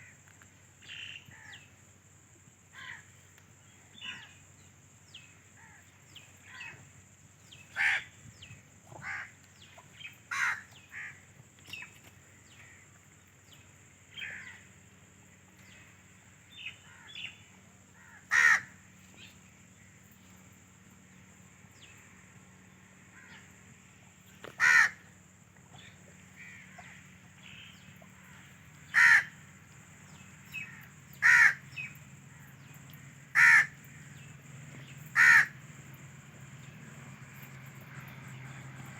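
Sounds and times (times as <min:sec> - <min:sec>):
birds calling: 0:03.9 - 0:04.4, 0:05.1 - 0:14.7, 0:15.5 - 0:20.2, 0:24.3 - 0:25.1, 0:25.7 - 0:38.9.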